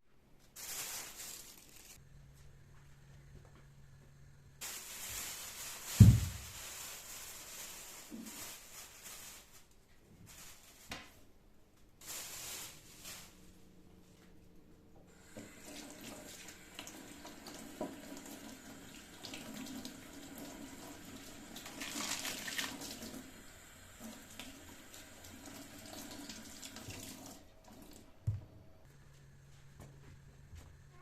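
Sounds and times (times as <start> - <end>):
kitchen tap running into sink: 15.1 - 28.1.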